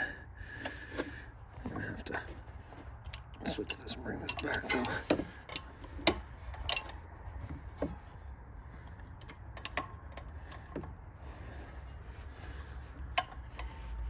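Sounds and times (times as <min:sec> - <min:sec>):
metal hand tools clicking: 0:03.1 - 0:05.7.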